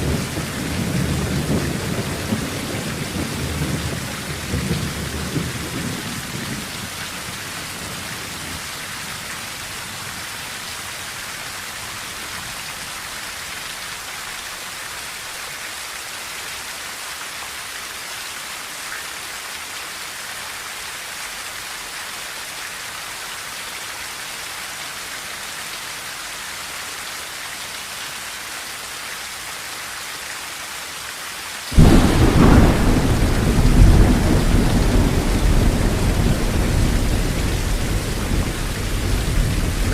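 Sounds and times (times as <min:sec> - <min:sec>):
rain drumming on a tin roof: 0:00.0 - 0:39.9
thunder rumble: 0:31.7 - 0:39.9
loud thunder clap: 0:31.8 - 0:39.9.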